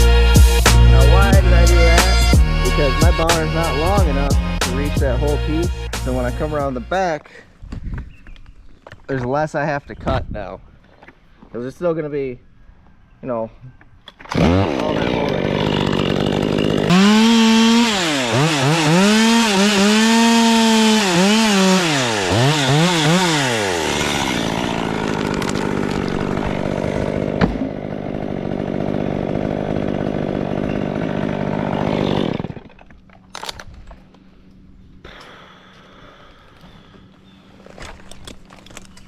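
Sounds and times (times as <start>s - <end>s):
chainsaw cutting wood: 0.0s - 6.6s, 14.2s - 33.8s.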